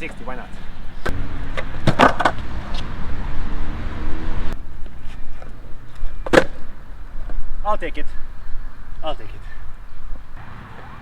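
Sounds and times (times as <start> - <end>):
longboard wheels rolling on pavement: 0.0 - 7.7
skateboard clacks: 1.0 - 2.9.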